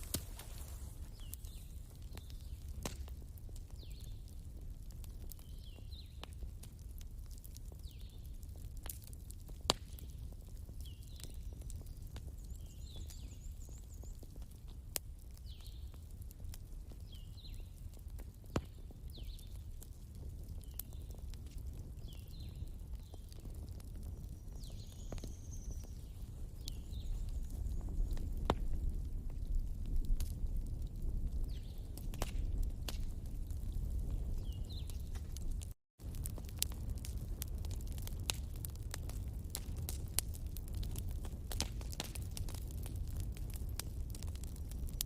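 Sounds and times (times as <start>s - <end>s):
fire crackling and popping: 0.0s - 45.0s.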